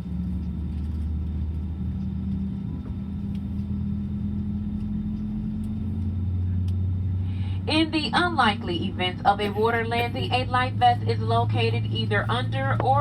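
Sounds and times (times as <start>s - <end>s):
aircraft cabin drone: 0.0s - 13.0s.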